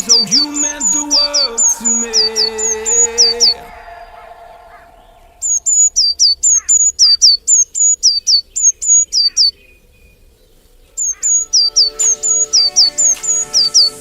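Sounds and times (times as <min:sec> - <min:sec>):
small bird chirping rapidly: 0:00.0 - 0:03.6, 0:04.7 - 0:14.0.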